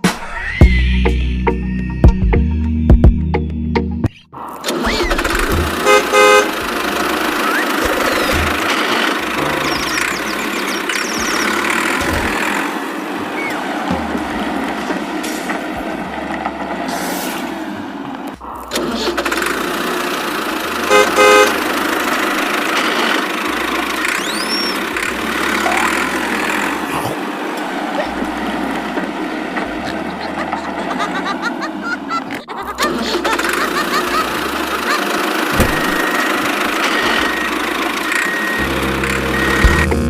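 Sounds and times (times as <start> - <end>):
busy vehicle noise: 4.4 - 40.0
horn honking: 5.4 - 16.2, 20.4 - 30.6, 33.8 - 40.0.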